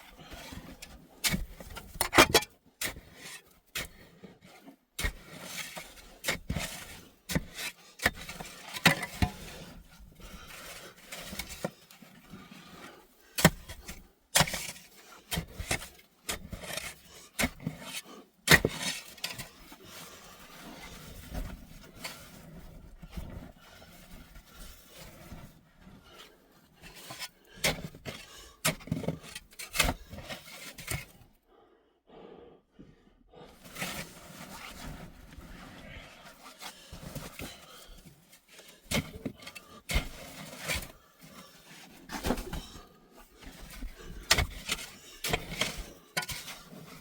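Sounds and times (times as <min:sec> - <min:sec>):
sharp knocks and scrapes: 0:01.3 - 0:03.5, 0:43.5 - 0:47.0.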